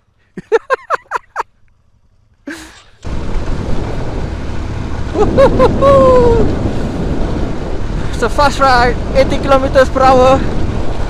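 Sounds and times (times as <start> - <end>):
motorcycle engine: 1.0 - 11.0
wind rushing over microphone: 3.0 - 11.0
person whooping and calling out: 5.8 - 6.5.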